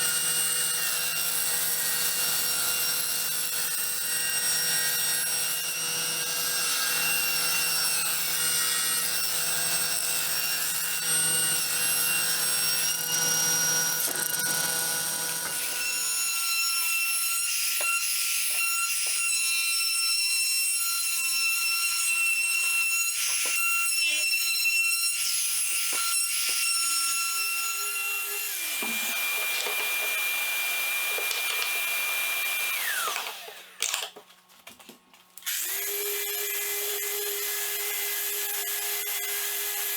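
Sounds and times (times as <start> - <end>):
power tool motor whine: 28.5 - 34.0.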